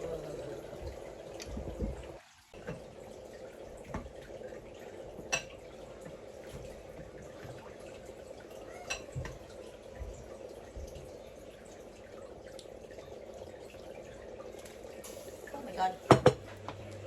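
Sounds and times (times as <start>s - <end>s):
watery hiss: 15.0s - 16.1s
kitchenware clinking: 16.0s - 16.6s.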